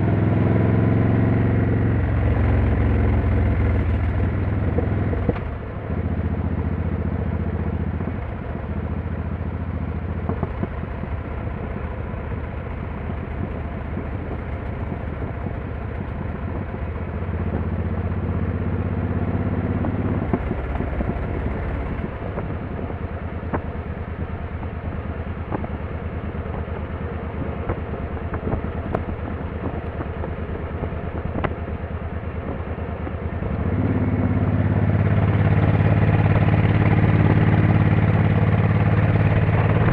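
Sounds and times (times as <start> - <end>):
motorcycle engine running: 0.0 - 39.9
road noise: 0.0 - 39.9
wind noise: 10.0 - 17.7, 19.8 - 39.9.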